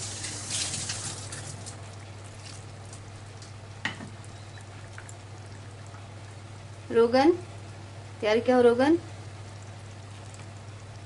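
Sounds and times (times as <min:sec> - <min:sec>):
water splashing into pan: 0:00.0 - 0:01.8
gravy sizzling in frying pan: 0:00.0 - 0:11.0.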